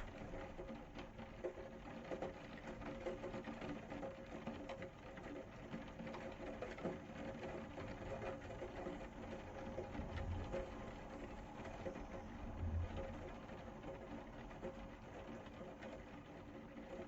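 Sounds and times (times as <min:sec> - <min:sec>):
rain patter: 0:00.0 - 0:17.0
faint steady hum: 0:07.4 - 0:17.0.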